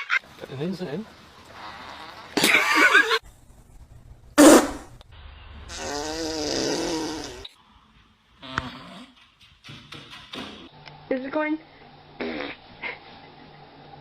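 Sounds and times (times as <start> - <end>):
fart sounds: 1.5 - 2.6, 4.4 - 5.0, 5.7 - 7.5, 12.2 - 12.6.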